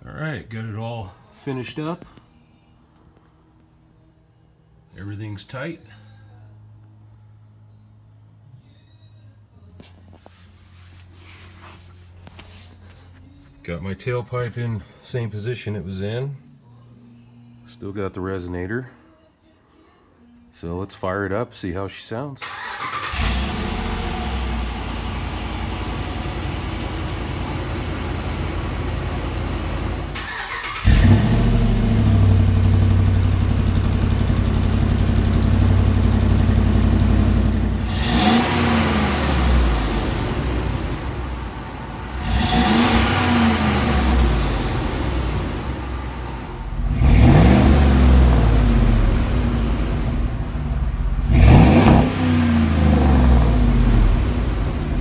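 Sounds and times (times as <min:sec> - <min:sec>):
truck exhaust idling and revving: 0:23.2 - 0:30.2, 0:30.8 - 0:55.0.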